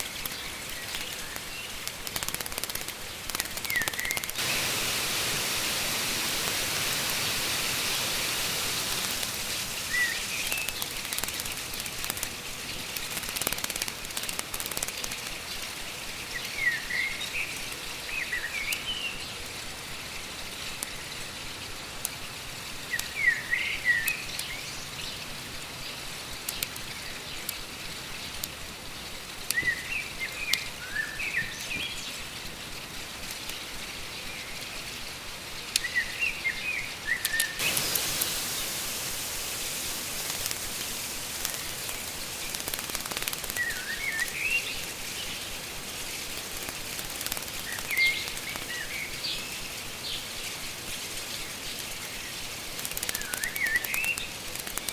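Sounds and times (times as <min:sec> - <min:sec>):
sharp clicks: 0:00.0 - 0:04.7, 0:05.8 - 0:15.7, 0:37.2 - 0:49.6, 0:51.7 - 0:54.9
birds chirping: 0:00.0 - 0:19.4, 0:35.6 - 0:54.9
stream rushing: 0:03.9 - 0:10.3, 0:37.6 - 0:45.0.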